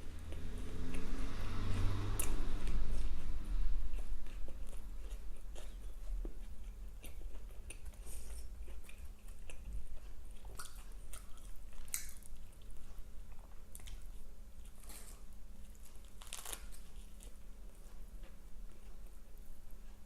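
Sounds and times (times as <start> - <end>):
close chewing with wet smacking: 0.1 - 20.0
small food crunches: 10.4 - 17.4.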